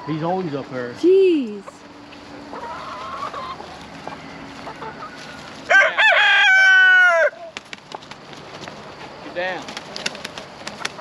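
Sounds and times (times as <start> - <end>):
hens clucking softly: 1.6 - 5.7
rooster crowing: 2.6 - 7.5.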